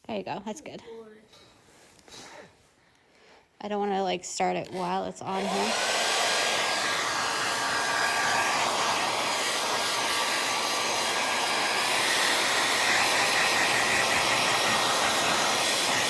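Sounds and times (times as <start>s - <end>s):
hair dryer whining: 4.8s - 16.0s.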